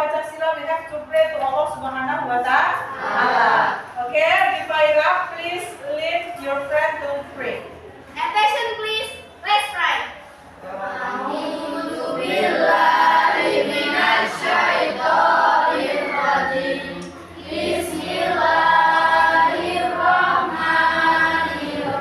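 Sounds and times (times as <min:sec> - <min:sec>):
children chanting a prayer: 0:02.8 - 0:03.9, 0:10.6 - 0:22.0.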